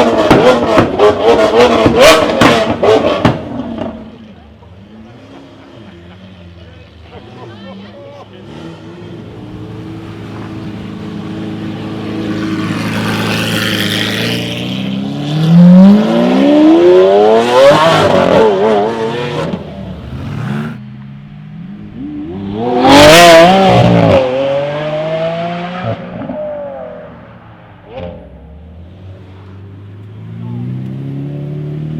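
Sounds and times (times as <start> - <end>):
car engine accelerating: 0.0 - 31.9.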